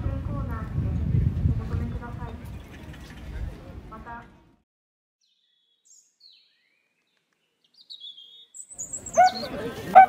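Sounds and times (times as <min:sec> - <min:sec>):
crowd chatter: 0:08.8 - 0:10.0.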